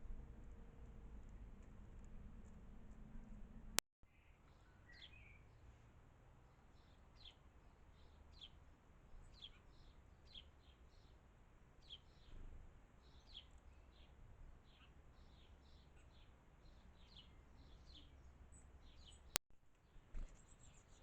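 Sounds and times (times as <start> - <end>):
low background rumble: 0.0 - 3.8
small bird calling faintly: 0.0 - 5.9, 9.2 - 11.2, 11.8 - 21.0.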